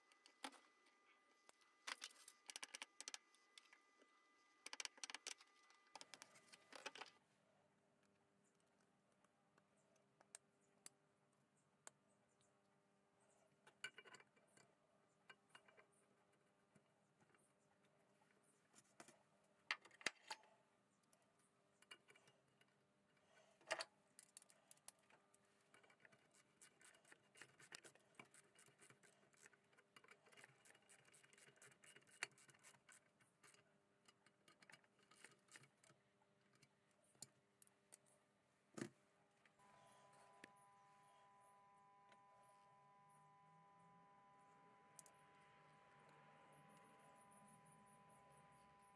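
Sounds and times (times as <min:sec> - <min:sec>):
small metal parts clicking: 0:01.8 - 0:03.7, 0:13.6 - 0:16.0, 0:21.8 - 0:38.2.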